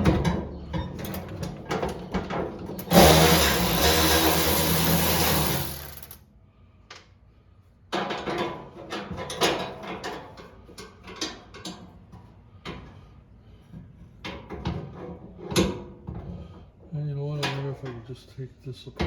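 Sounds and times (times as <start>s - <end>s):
parts clicking and rattling: 0.8s - 6.2s
small power tool motor: 2.8s - 6.2s.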